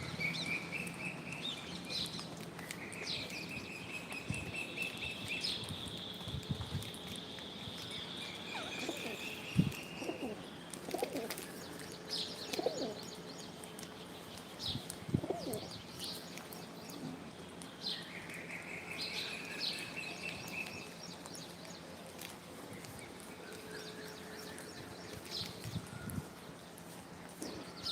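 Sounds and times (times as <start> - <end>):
bird chirps: 7.1 - 14.9
pigeon cooing: 8.5 - 11.5, 12.4 - 13.0, 15.2 - 15.7.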